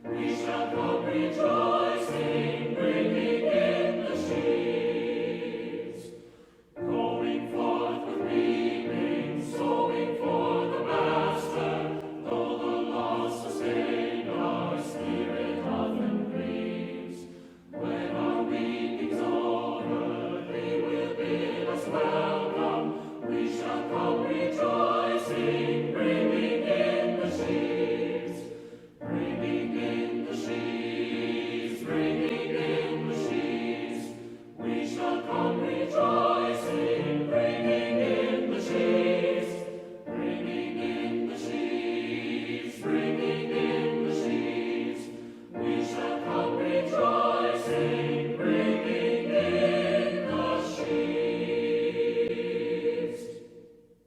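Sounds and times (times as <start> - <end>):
group singing a hymn: 0.0 - 53.9
breaths between sung lines: 6.2 - 6.8, 17.3 - 17.7, 28.5 - 29.0.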